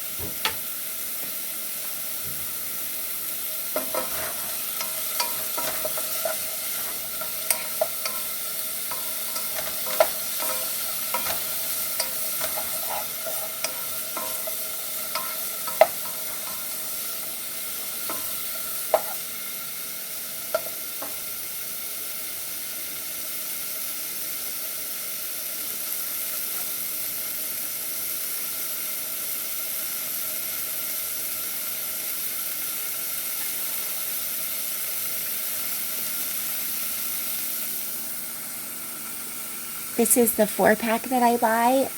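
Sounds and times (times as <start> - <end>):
vegetables sizzling in oil: 0.0 - 41.9
utensil knocking against pan: 15.2 - 16.7.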